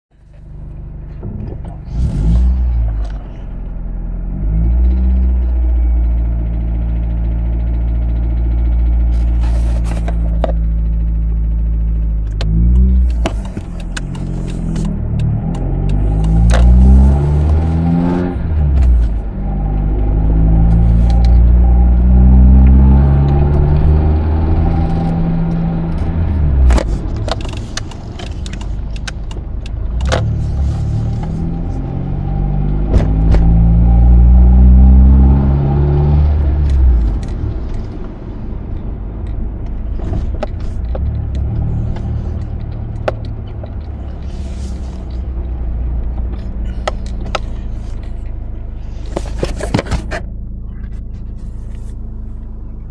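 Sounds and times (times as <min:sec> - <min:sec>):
car engine idling and revving: 0:00.1 - 0:52.9
sharp clicks: 0:12.3 - 0:16.8.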